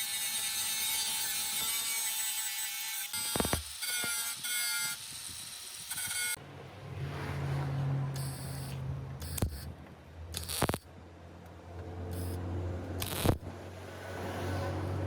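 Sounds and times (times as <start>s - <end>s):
small electric motor whining: 0.0s - 6.4s, 8.2s - 9.7s, 10.4s - 10.8s, 12.1s - 12.4s, 13.0s - 13.5s.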